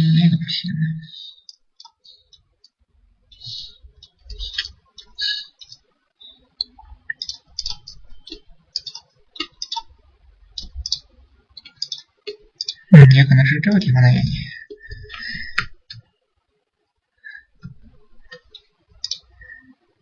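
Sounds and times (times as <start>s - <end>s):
computer mouse clicking: 6.6s - 9.9s, 10.6s - 12.8s.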